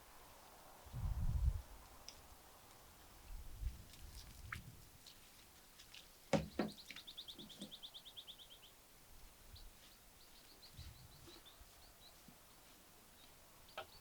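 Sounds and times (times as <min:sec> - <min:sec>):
bird chirps: 0:06.5 - 0:08.7, 0:09.6 - 0:12.2.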